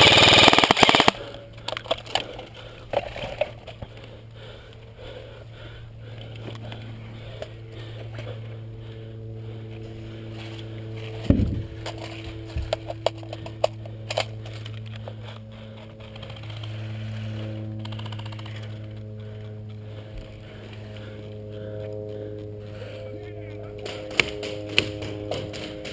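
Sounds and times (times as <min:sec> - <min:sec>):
airsoft guns firing: 0:00.0 - 0:01.4, 0:23.8 - 0:25.9
low hum: 0:00.0 - 0:25.9.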